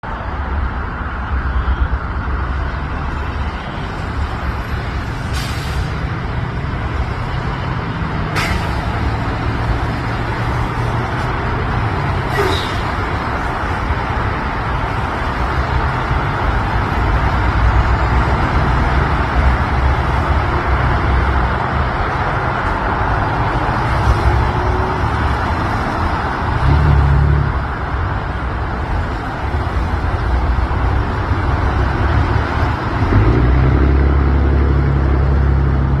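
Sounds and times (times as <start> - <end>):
road vehicles rumbling: 0.0 - 36.0.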